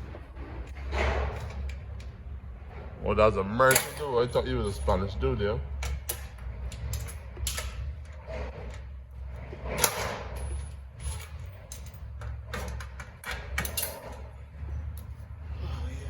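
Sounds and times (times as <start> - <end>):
steady low hum: 0.0 - 16.0
knocks and clinks of tools: 3.6 - 4.8, 9.7 - 15.2.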